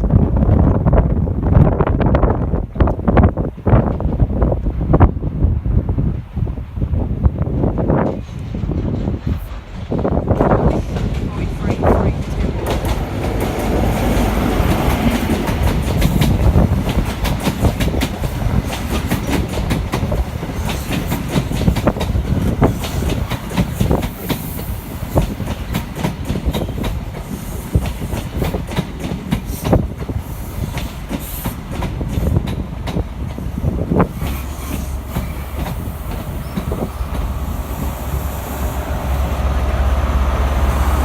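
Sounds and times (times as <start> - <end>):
train rumbling on track: 0.0 - 41.0
wheels clicking over rail joints: 7.6 - 37.4.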